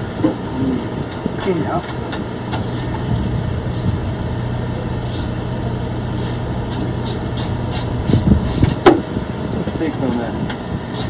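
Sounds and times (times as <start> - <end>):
low engine hum: 0.0 - 11.0
loud thumps: 1.5 - 9.1.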